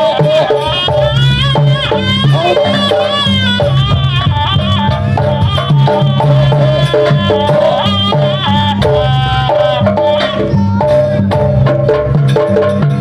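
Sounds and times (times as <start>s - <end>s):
high wavering melody: 0.0s - 11.9s
gamelan ensemble: 0.0s - 13.0s
hand drums beating: 0.0s - 13.0s.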